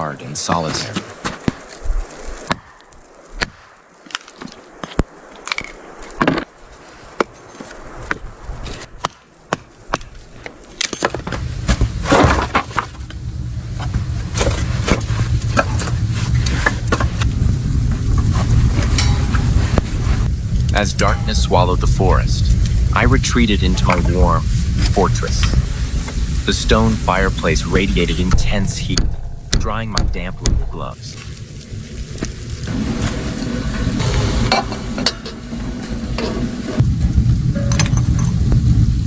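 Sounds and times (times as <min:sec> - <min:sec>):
wood cracking: 0:00.9 - 0:06.6
small crackles: 0:00.9 - 0:20.8, 0:30.4 - 0:34.4
steady low rumble: 0:11.3 - 0:39.0.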